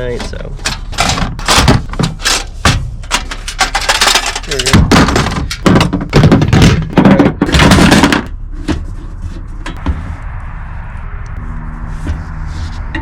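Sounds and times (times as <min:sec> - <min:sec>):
camping gear rustling and knocking: 0:00.1 - 0:10.0.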